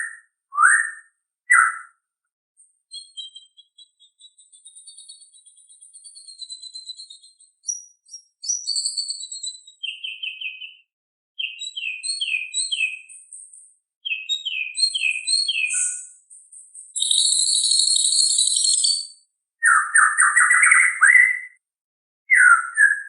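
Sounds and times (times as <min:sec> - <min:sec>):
bird singing trills and whistles: 0:00.0 - 0:02.0, 0:02.6 - 0:21.6, 0:22.3 - 0:23.0.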